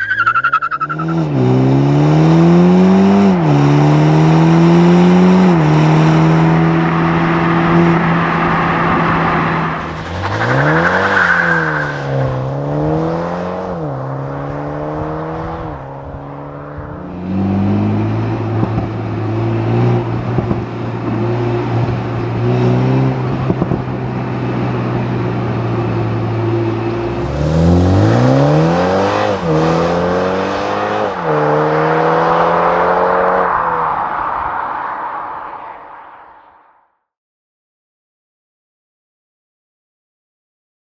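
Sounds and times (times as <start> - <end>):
car engine revving: 0.0 - 36.2
exhaust crackles: 5.5 - 17.2, 27.0 - 35.1.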